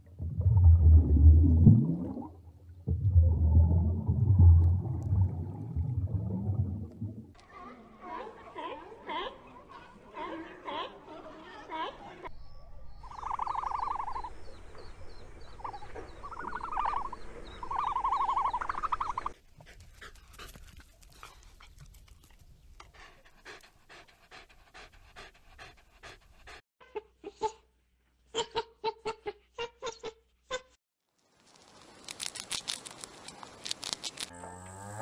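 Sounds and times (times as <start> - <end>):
dog panting: 22.8 - 26.6.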